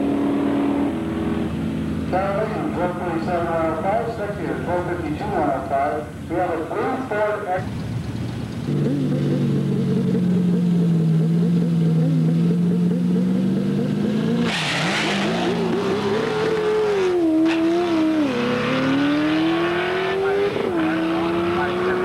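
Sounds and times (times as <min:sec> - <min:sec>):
drag car engine revving: 0:07.6 - 0:22.0.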